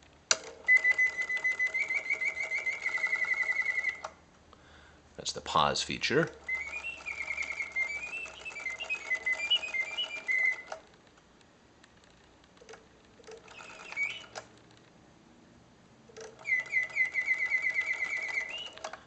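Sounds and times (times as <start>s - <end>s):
mechanical birdsong whistling: 0.4s - 4.2s, 6.1s - 10.9s, 12.6s - 14.6s, 16.1s - 19.0s
fast bird trill: 0.7s - 4.0s, 6.4s - 10.7s, 13.4s - 14.4s, 16.4s - 18.8s
faint mechanical clicks: 16.1s - 19.0s.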